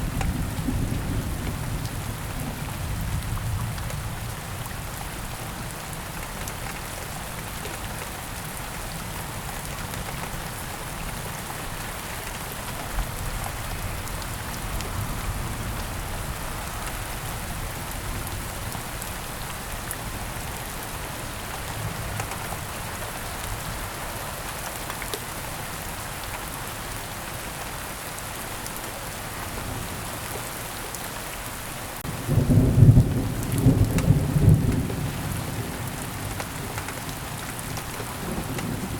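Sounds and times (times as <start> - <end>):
heavy rain: 0.0 - 38.9
thunder rumbling: 32.0 - 38.9.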